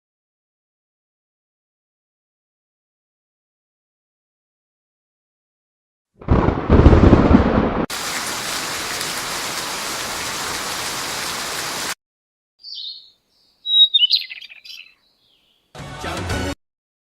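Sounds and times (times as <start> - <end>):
rain hiss: 7.9 - 12.0
short high bird chirps: 12.6 - 15.7.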